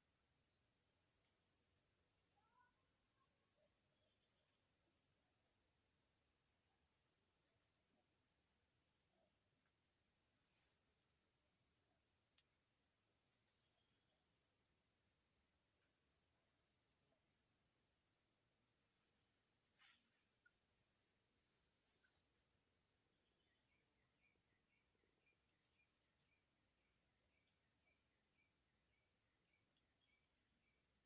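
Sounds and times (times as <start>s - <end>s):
insects chirring: 2.2s - 4.6s, 11.3s - 31.0s.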